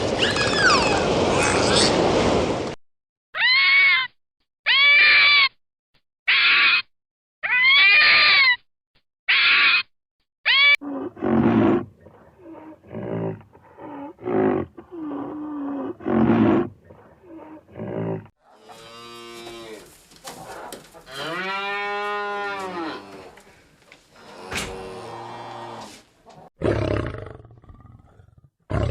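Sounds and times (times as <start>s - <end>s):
cattle mooing: 18.5s - 19.9s, 21.1s - 23.3s.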